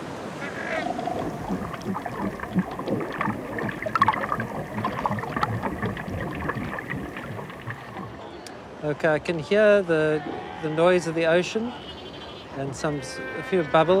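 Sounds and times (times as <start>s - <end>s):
underwater bubbling: 0.3s - 8.2s
underwater crackling hiss: 0.5s - 8.2s.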